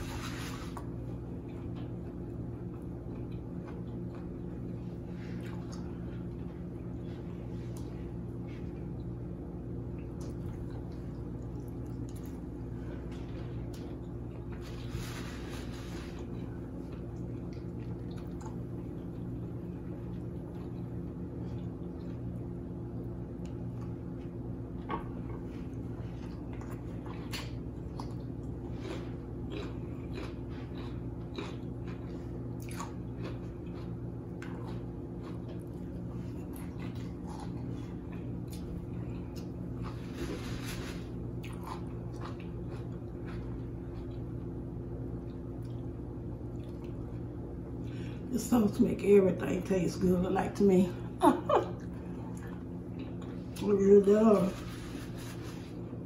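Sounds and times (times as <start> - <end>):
person chewing food: 0.0 - 48.1, 51.8 - 53.6
steady low hum: 0.0 - 56.0.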